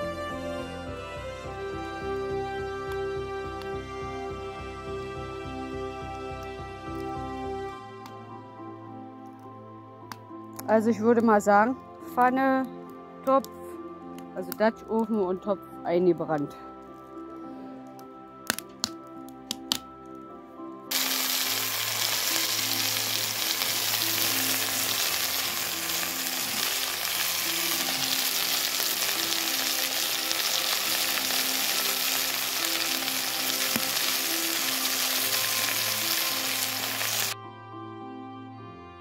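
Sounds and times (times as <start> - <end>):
background music: 0.0 - 39.0
food sizzling in a pan: 20.9 - 37.4.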